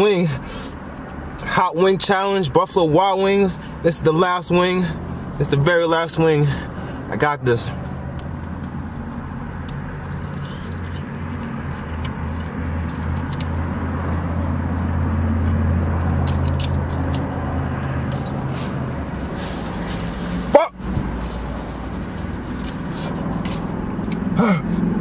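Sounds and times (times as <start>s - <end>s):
car engine idling: 6.2s - 25.0s
chewing and biting: 9.6s - 24.3s.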